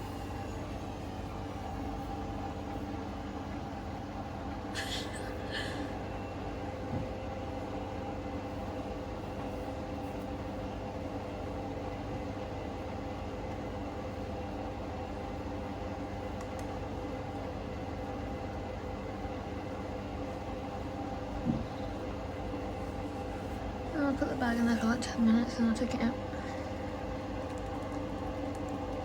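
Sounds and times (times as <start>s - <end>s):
washing machine spinning: 0.0s - 29.0s
washing machine thump: 21.4s - 21.8s.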